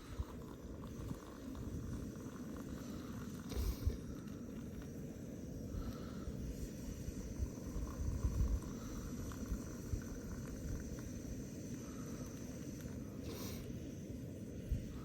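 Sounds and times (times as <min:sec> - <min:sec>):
brief hiss: 0:12.2 - 0:13.8.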